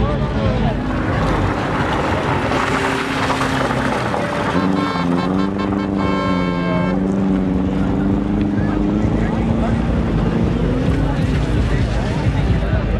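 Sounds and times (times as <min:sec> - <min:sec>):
tyres on loose gravel: 0:00.2 - 0:06.8
car engine at high revs: 0:00.4 - 0:12.9
loud pitched tone: 0:04.5 - 0:07.2.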